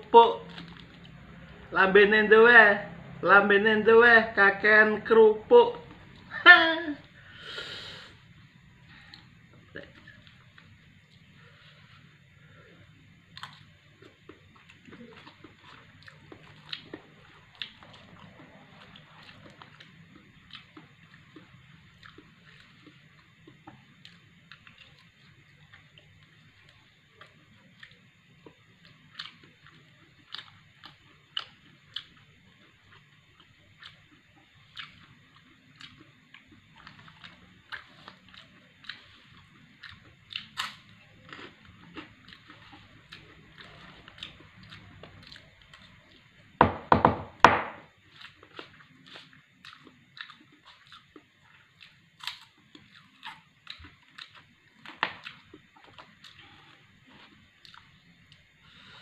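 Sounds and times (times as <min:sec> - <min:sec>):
crackers crunching: 0:00.3 - 0:01.6, 0:26.6 - 0:46.3, 0:48.0 - 0:58.4
person chewing: 0:00.3 - 0:01.6, 0:08.9 - 0:46.4, 0:48.0 - 0:58.9.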